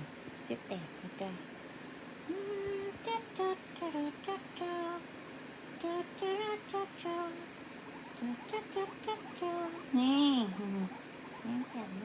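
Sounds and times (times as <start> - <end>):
woman humming a tune: 2.3 - 5.0, 8.2 - 12.0.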